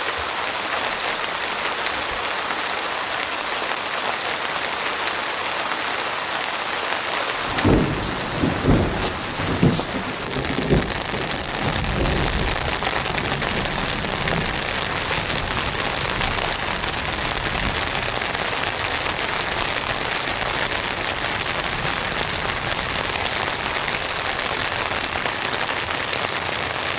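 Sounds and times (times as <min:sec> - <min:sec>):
steady rain falling: 0:00.0 - 0:26.9
low thuds: 0:07.4 - 0:13.1.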